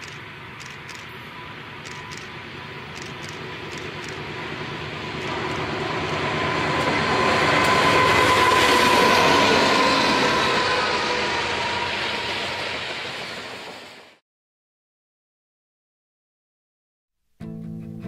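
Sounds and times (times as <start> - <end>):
freight train passing: 0.0 - 14.2
steady whine: 0.0 - 14.2.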